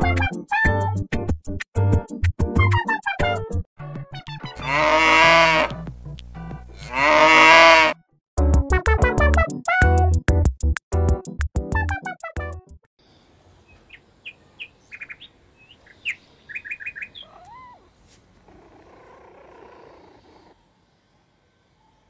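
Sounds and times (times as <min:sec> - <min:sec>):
music track: 0:08.4 - 0:12.8
small birds chirping: 0:13.0 - 0:22.0
bird rising and falling call: 0:13.9 - 0:17.9.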